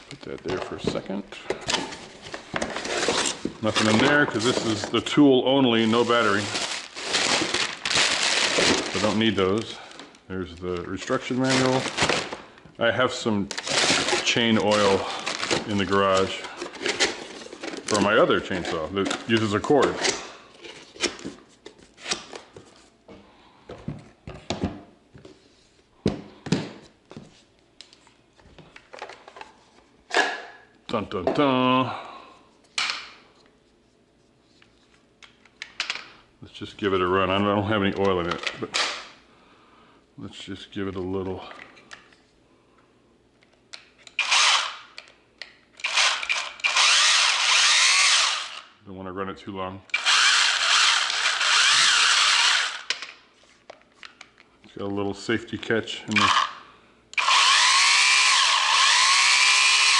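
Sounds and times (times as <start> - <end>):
packaging rustling: 1.6 - 12.5, 13.4 - 20.0
chainsaw motor and chain whirring: 44.2 - 44.9, 45.8 - 48.7, 49.9 - 52.9, 56.2 - 56.6, 57.2 - 59.9.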